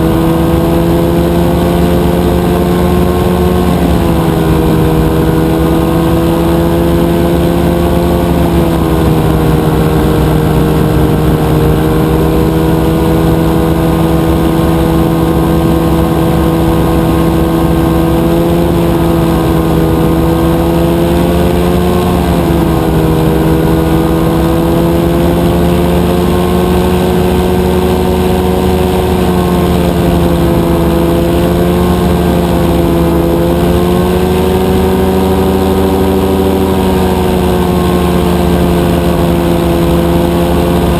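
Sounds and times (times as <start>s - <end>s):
two-stroke engine running: 0.0s - 40.9s.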